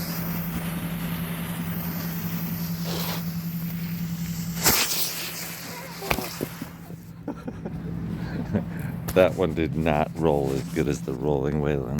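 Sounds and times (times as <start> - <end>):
firework bang: 0.0 - 6.9
firework hissing: 0.0 - 7.1
low hum: 0.0 - 11.9
firework pop: 4.6 - 6.8.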